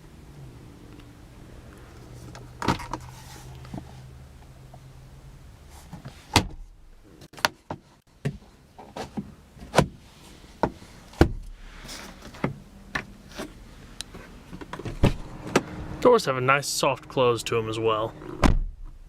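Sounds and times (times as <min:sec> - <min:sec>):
car door latches clicking: 0:18.2 - 0:19.0.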